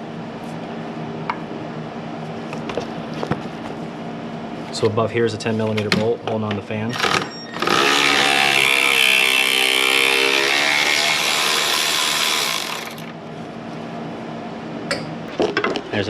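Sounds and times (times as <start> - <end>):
cordless power tool motor whirring: 7.0 - 13.2.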